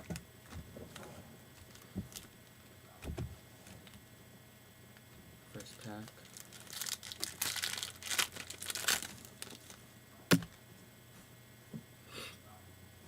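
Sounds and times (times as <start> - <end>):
card pack wrapper tearing: 5.6 - 10.6.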